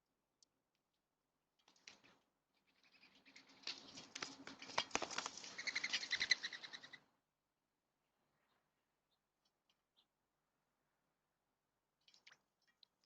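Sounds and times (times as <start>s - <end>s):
bird splashing in water: 3.6s - 6.2s.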